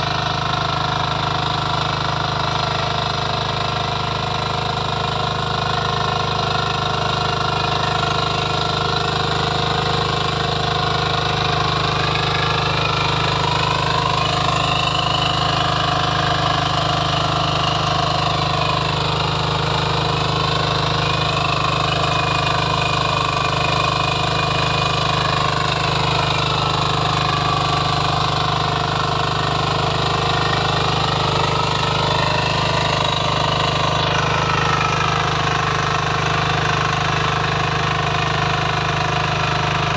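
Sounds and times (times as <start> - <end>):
rapid mechanical clatter: 0.0 - 39.9
small engine running: 0.0 - 39.9.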